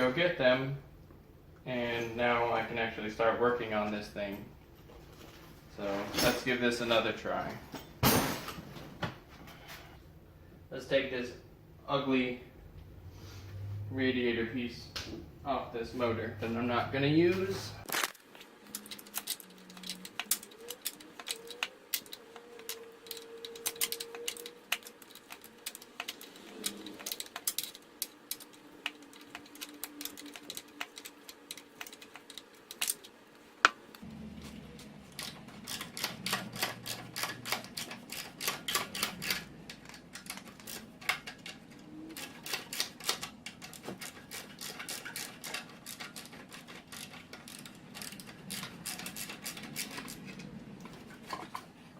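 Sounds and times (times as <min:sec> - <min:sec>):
ratchet wrench clicking: 0:35.2 - 0:41.3, 0:42.2 - 0:50.2.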